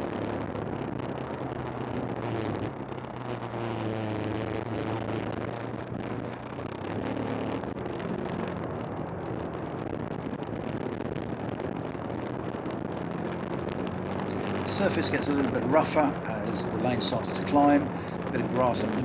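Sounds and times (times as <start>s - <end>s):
motorcycle engine running: 14.0s - 19.0s.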